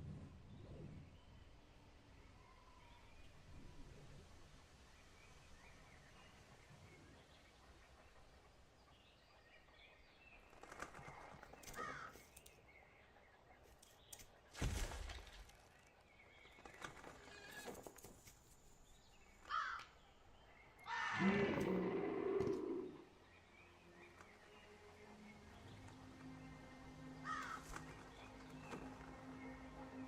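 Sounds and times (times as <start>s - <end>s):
animal calls: 20.8s - 23.1s.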